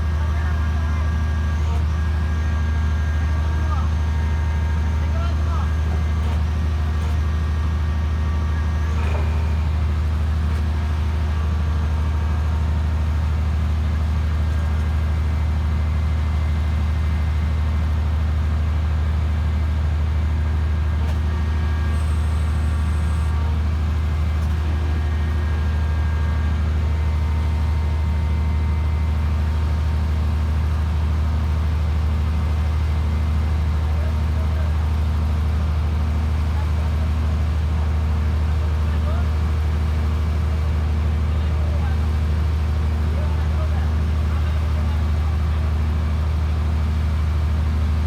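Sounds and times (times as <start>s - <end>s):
machine engine humming: 0.0s - 35.0s.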